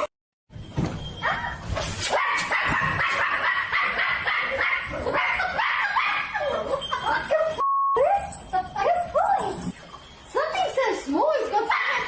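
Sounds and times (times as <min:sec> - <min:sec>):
dog yapping: 0:01.2 - 0:07.6.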